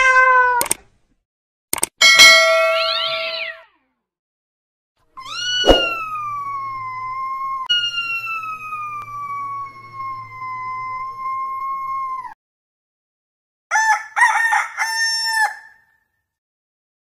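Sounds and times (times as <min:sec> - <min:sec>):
cat yowling: 0:00.0 - 0:00.6, 0:02.7 - 0:03.8, 0:05.2 - 0:12.4
sharp knock: 0:05.6 - 0:06.0.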